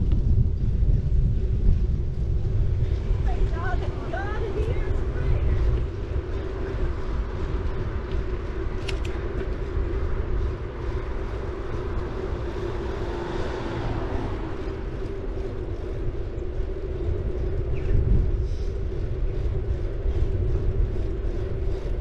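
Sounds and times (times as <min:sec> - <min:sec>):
bicycle tyres rolling on pavement: 0:00.0 - 0:22.0
wind rumble on microphone: 0:00.0 - 0:22.0
light clicks: 0:08.8 - 0:09.5.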